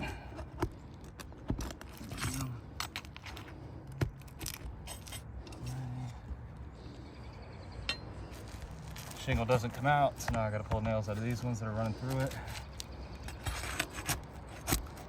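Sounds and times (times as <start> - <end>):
tool working roof shingle: 8.7 - 15.0.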